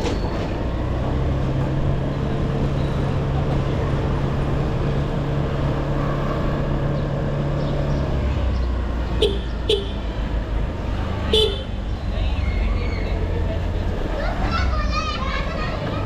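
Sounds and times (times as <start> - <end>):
road and wind rumble: 0.0 - 16.0.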